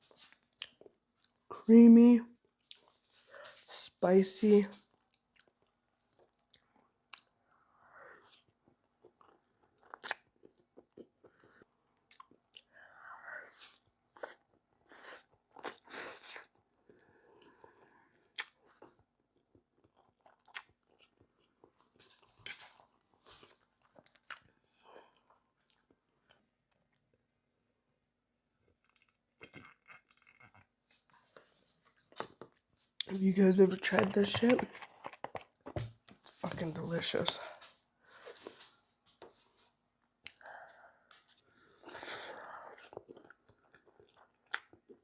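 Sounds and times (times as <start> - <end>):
person chewing wet mouth sounds: 5.3 - 16.6, 17.3 - 22.6, 28.7 - 30.7, 40.2 - 45.0.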